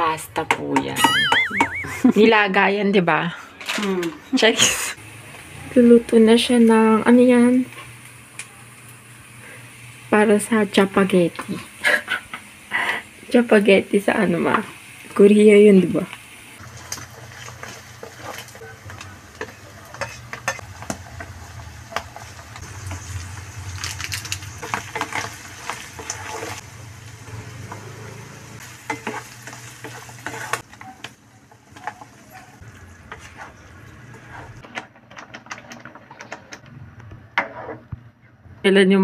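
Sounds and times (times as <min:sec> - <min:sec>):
meat sizzling in a frying pan: 0:05.0 - 0:33.8
spatula scraping a pan: 0:16.6 - 0:20.9, 0:24.6 - 0:26.6, 0:27.7 - 0:31.2, 0:31.8 - 0:34.7, 0:37.4 - 0:38.0.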